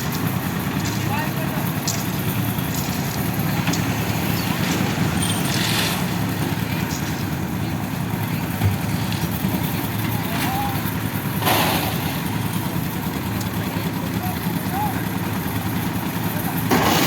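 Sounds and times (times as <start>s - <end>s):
engine running steadily: 0.0s - 17.0s
voices: 0.0s - 17.0s.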